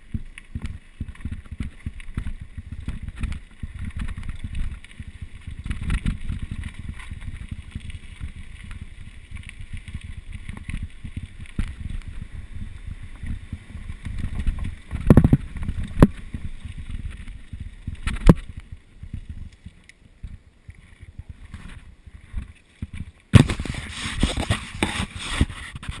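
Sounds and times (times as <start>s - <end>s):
mountain bike rattling on trail: 0.0s - 26.0s
wind buffeting microphone: 1.1s - 19.5s.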